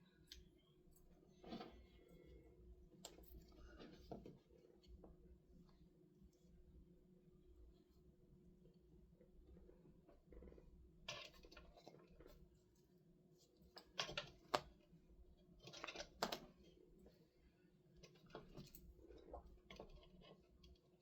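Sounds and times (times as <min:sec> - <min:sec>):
low steady hum: 0:00.0 - 0:21.0
clicks and rustles of small parts: 0:11.1 - 0:17.2.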